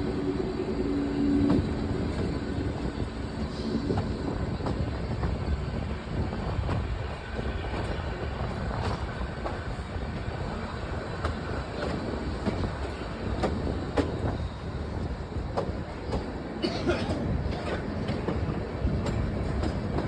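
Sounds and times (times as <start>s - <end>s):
train rumbling: 0.0s - 20.0s
wheels clacking over rail joints: 6.4s - 16.4s.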